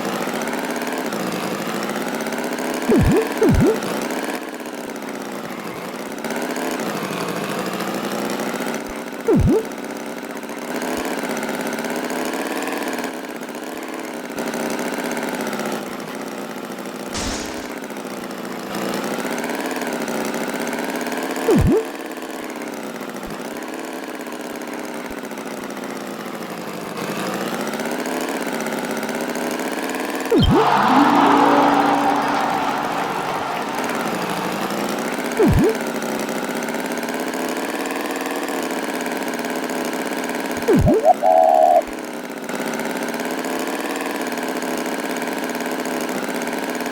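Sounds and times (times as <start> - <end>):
short rising chirp: 2.9 - 3.9, 9.3 - 9.7, 21.5 - 21.8, 30.3 - 34.6, 35.4 - 35.8, 40.7 - 41.9.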